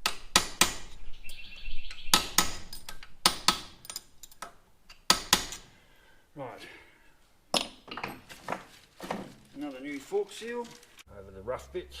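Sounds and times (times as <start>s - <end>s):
metallic clinks and knocks: 2.7s - 4.5s.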